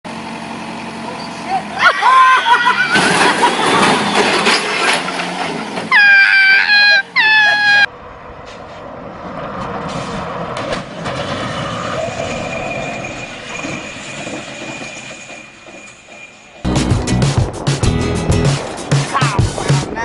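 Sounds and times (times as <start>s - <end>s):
rumbling vehicle noise: 0.1s - 20.0s
steady high squeal: 11.3s - 16.8s.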